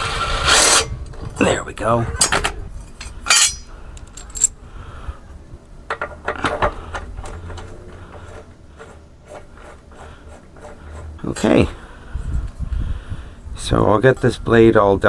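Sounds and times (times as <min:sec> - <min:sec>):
metal clinking and clattering: 0:02.2 - 0:04.5.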